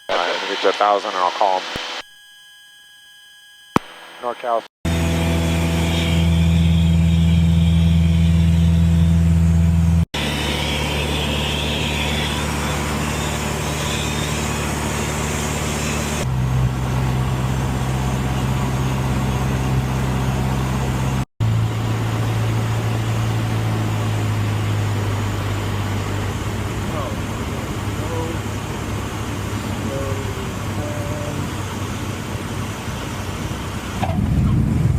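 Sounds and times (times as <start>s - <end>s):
light aircraft engine droning: 8.1s - 34.9s.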